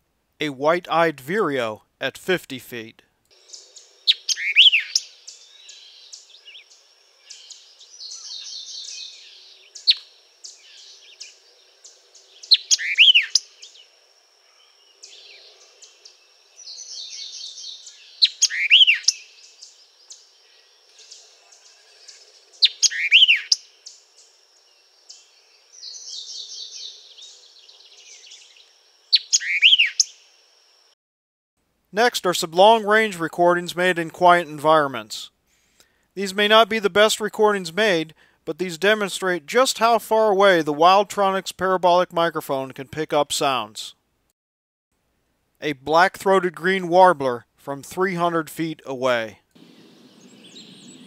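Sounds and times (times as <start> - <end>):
bird singing sharp phrases: 3.3 - 13.9, 14.5 - 30.3, 49.6 - 51.0.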